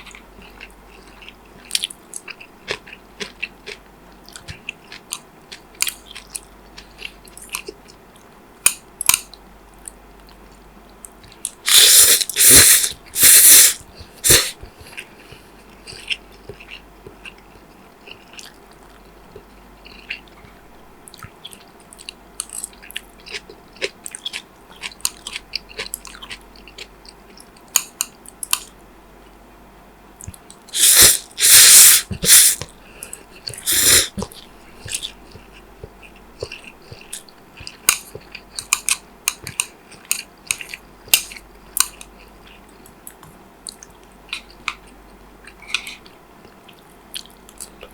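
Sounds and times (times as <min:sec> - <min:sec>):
soft chewing: 0:00.0 - 0:29.4, 0:30.1 - 0:47.9
wet mouth clicks: 0:11.5 - 0:14.6, 0:30.2 - 0:32.7, 0:33.4 - 0:42.1
loud bites or slurps: 0:11.7 - 0:14.6, 0:30.8 - 0:32.7, 0:33.6 - 0:34.3.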